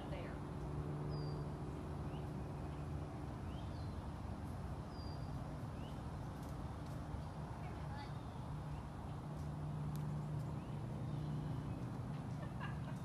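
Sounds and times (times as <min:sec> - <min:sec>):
bird chirps: 0:01.1 - 0:04.2, 0:04.8 - 0:06.8.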